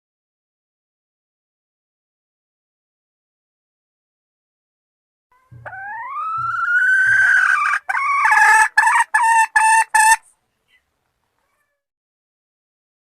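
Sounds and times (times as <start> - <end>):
junglefowl calling: 5.4 - 10.3.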